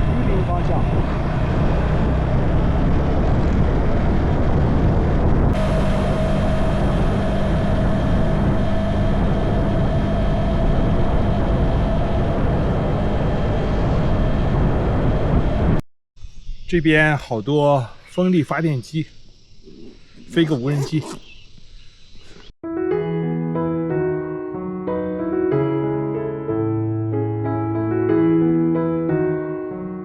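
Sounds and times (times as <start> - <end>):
motorcycle engine running: 0.0 - 15.7
wind noise: 0.0 - 15.8
steady mid-pitched whine: 5.5 - 21.4.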